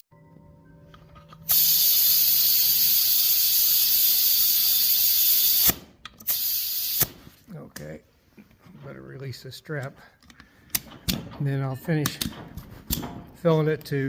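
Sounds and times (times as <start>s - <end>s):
compressed air hissing into tire: 1.5s - 7.2s.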